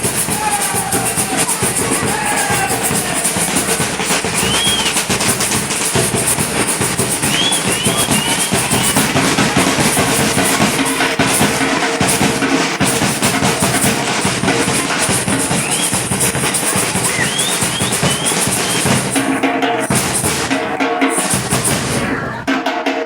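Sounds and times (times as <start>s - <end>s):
samba percussion ensemble: 0.0s - 23.0s
high rising chirps: 6.4s - 10.7s, 15.2s - 22.2s.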